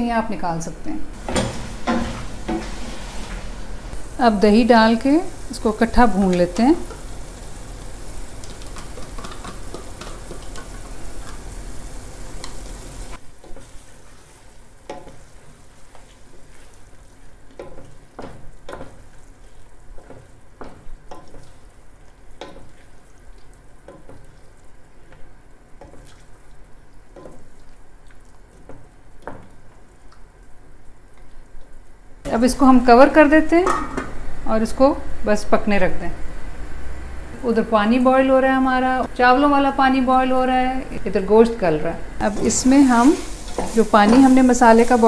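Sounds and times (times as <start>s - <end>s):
meat sizzling in a pot: 1.2s - 28.0s, 42.1s - 45.0s.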